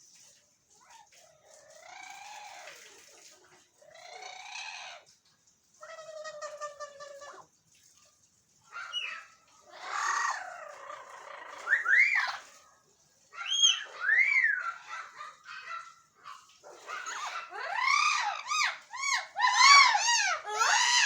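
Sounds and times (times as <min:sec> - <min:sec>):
parrots squawking: 0:08.7 - 0:12.5, 0:13.4 - 0:21.0.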